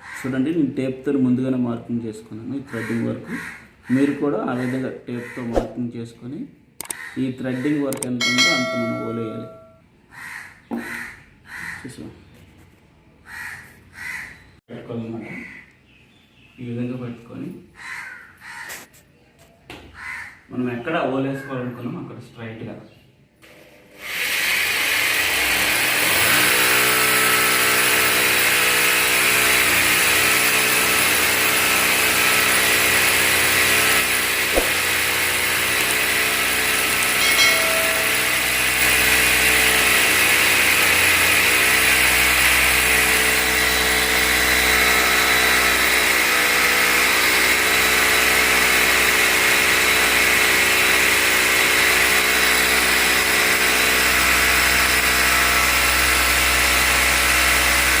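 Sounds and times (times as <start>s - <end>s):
hammer drill boring into concrete: 8.0s - 9.7s, 23.9s - 58.0s.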